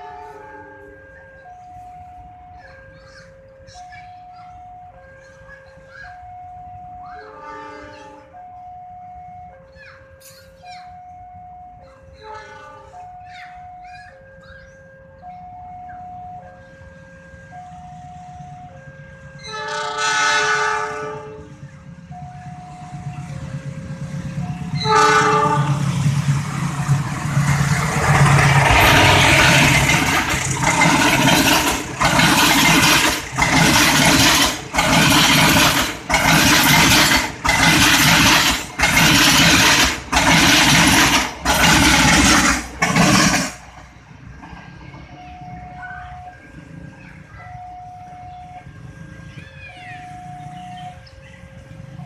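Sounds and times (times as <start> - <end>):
train horn blast: 0.0 - 1.2, 7.3 - 8.4, 12.2 - 13.0, 19.3 - 21.6, 24.7 - 26.1
train rumbling past: 0.0 - 52.0.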